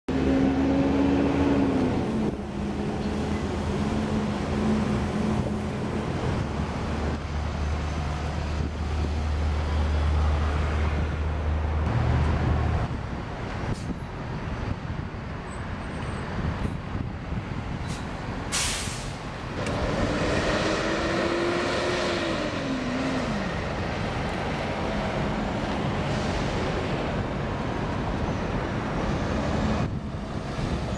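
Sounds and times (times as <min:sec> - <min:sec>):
truck diesel engines running: 0:00.1 - 0:30.9
air brake hiss: 0:17.9 - 0:19.3.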